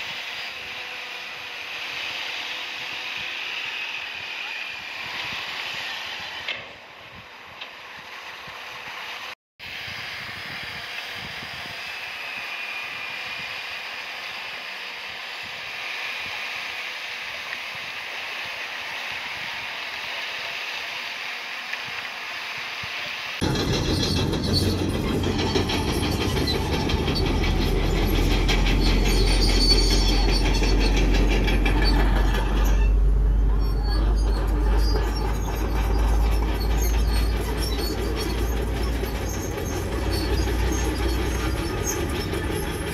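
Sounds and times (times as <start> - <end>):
bulldozer working: 23.4 - 42.9
steel tracks clanking and squealing: 23.4 - 42.9.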